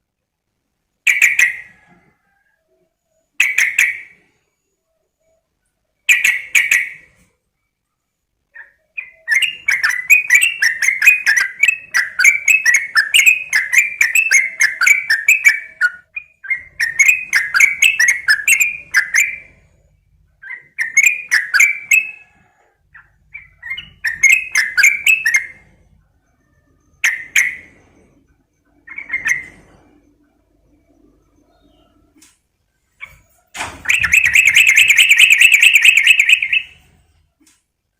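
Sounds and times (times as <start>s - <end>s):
bulbul chattering: 33.8s - 36.9s.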